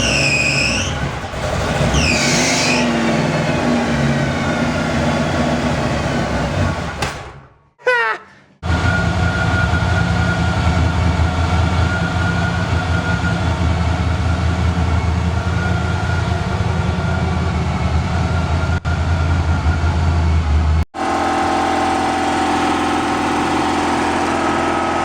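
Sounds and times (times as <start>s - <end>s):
car engine low rumble: 8.6s - 25.0s.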